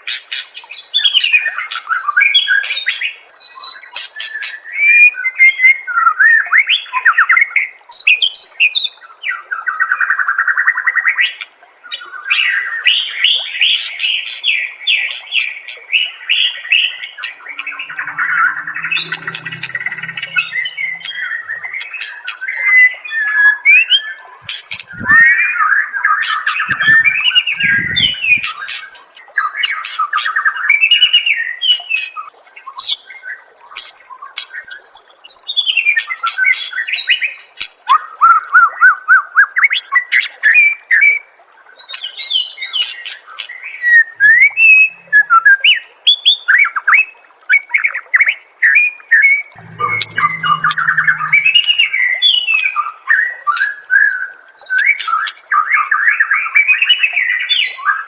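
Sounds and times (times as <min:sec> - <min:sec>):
bird singing whistled phrases: 0:02.6 - 0:05.7.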